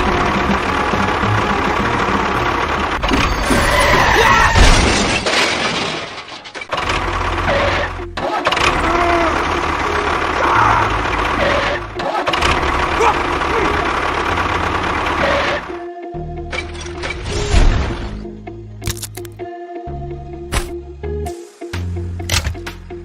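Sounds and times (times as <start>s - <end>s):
engine running: 0.0s - 3.6s, 6.7s - 16.8s.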